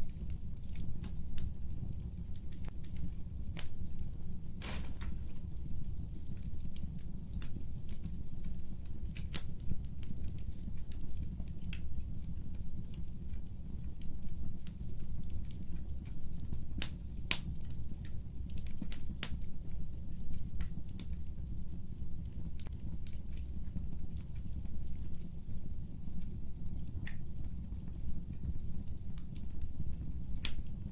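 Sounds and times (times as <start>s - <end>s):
fire crackling in a fireplace: 0.0s - 30.9s
pops and snaps of fire: 0.1s - 19.5s, 26.2s - 30.8s.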